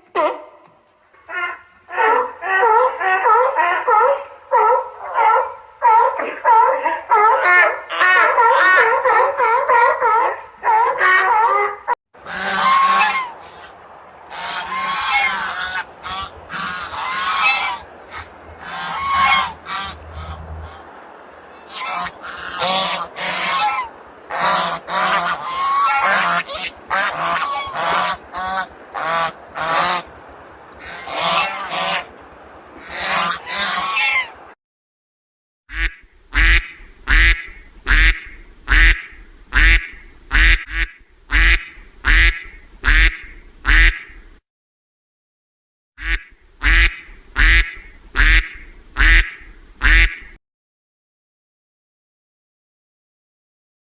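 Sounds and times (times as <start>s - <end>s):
duck quacking: 5.9s - 13.7s, 14.3s - 20.8s, 21.7s - 30.1s, 30.8s - 32.1s, 32.8s - 34.4s, 35.7s - 44.2s, 46.0s - 50.4s
geese honking: 7.1s - 13.7s, 14.3s - 20.9s, 21.5s - 30.2s, 30.8s - 32.2s, 32.8s - 34.4s, 35.7s - 44.1s, 46.0s - 50.3s.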